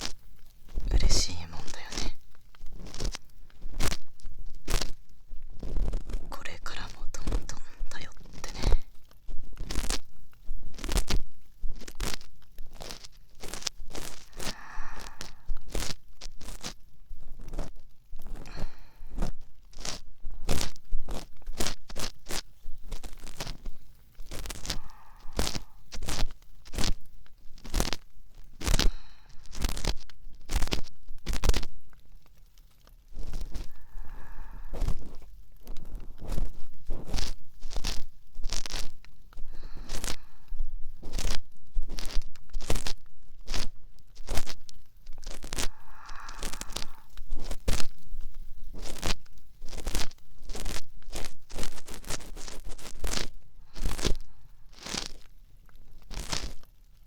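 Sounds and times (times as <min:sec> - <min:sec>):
ear pick scraping: 0:10.7 - 0:32.0, 0:32.8 - 0:55.3, 0:56.0 - 0:56.6.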